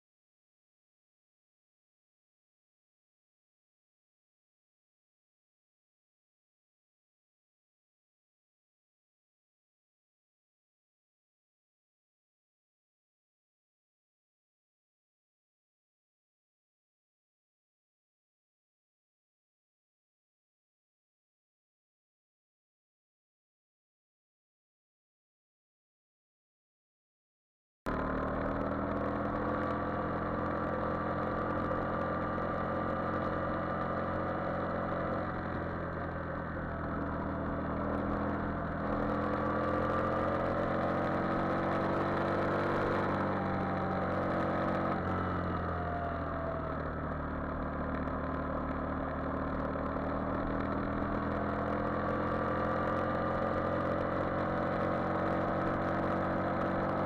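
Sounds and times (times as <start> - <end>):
motorcycle engine revving: 27.9 - 57.0.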